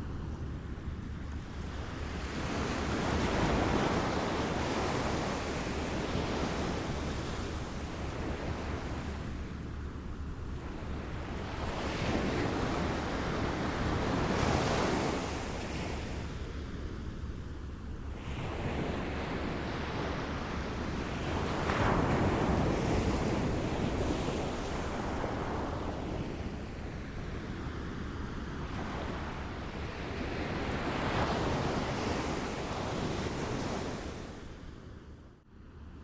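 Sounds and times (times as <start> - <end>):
waves lapping on shore: 18.2 - 34.6.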